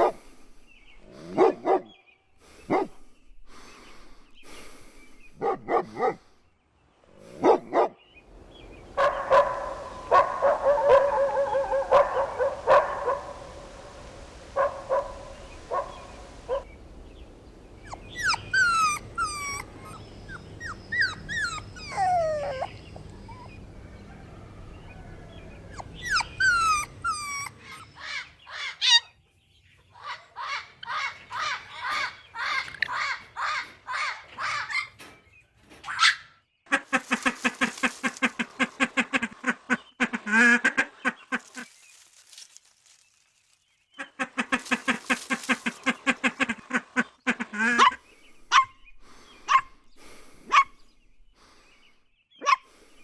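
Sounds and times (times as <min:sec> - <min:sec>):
dog barks: 0:00.0 - 0:00.2, 0:01.2 - 0:01.9, 0:02.7 - 0:03.0, 0:05.4 - 0:06.2, 0:07.3 - 0:08.0, 0:09.0 - 0:13.5, 0:14.6 - 0:16.7, 0:35.8 - 0:36.3, 0:47.7 - 0:48.8, 0:50.5 - 0:50.8, 0:52.4 - 0:52.7
dogs yapping: 0:09.0 - 0:13.4, 0:17.8 - 0:23.6, 0:25.7 - 0:29.1, 0:30.0 - 0:36.4, 0:50.5 - 0:50.8
dogs whining and yelping: 0:17.8 - 0:23.8, 0:25.6 - 0:29.1, 0:30.0 - 0:36.3.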